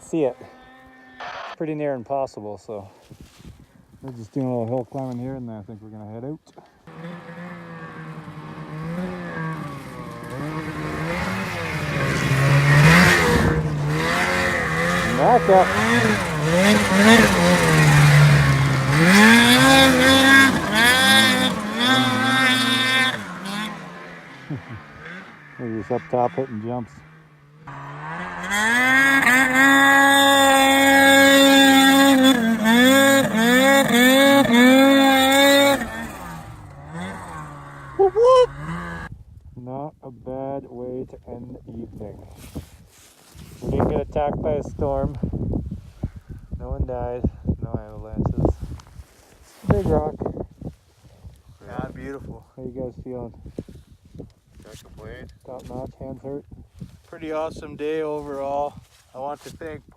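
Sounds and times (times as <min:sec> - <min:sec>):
snowmobile engine revving: 0:00.0 - 0:01.6, 0:06.8 - 0:39.1.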